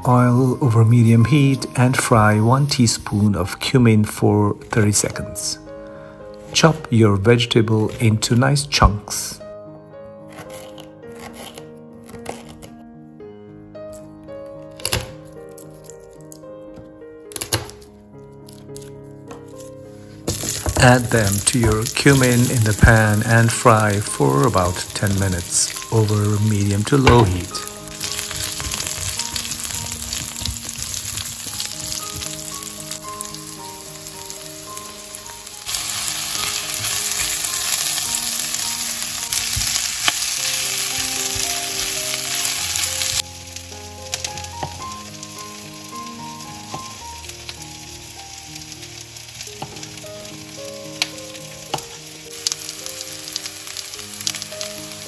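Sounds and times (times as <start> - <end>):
soft background music: 0.0 - 55.0
vegetables sizzling in oil: 20.3 - 55.0.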